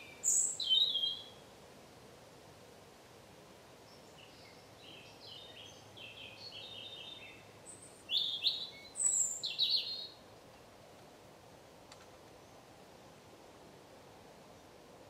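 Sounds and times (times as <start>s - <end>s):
songbirds singing: 0.0s - 1.4s, 3.8s - 10.8s
faint steady hiss: 0.0s - 15.0s.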